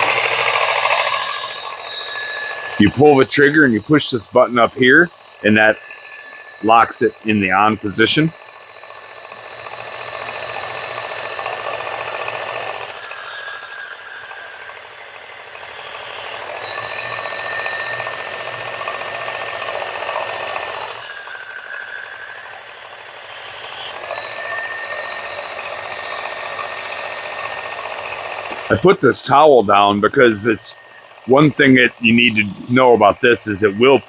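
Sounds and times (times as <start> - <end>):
belt sharpener running: 0.0 - 28.8, 30.6 - 31.9
knife blade grinding on belt: 12.6 - 16.6, 20.3 - 24.0.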